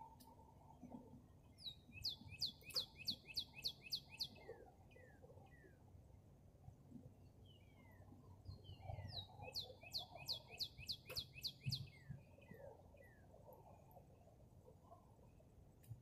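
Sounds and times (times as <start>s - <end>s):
birds chirping: 1.6s - 5.0s, 7.4s - 13.8s.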